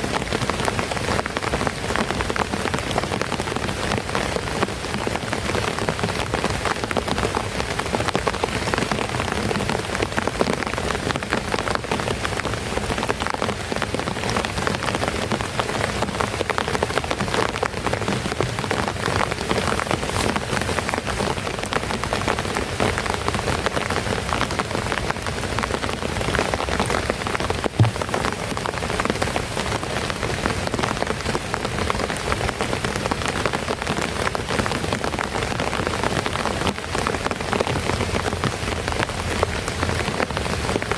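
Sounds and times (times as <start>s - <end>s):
heavy rain patter on surface: 0.0s - 40.9s
sharp knock: 27.8s - 28.3s.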